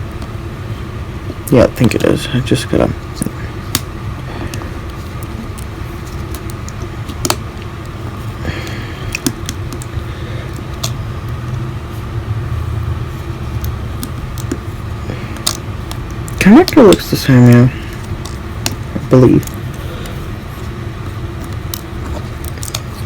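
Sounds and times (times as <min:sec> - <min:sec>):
low background hum: 0:00.0 - 0:23.0
small parts clicking and tapping: 0:08.6 - 0:11.4, 0:13.6 - 0:14.6, 0:15.3 - 0:20.2, 0:21.4 - 0:23.0.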